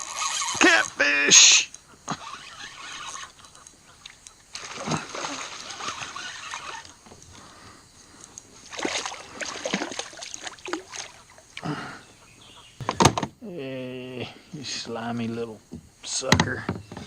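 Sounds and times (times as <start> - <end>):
fish thrashing in water: 4.0 - 7.5, 8.5 - 11.7.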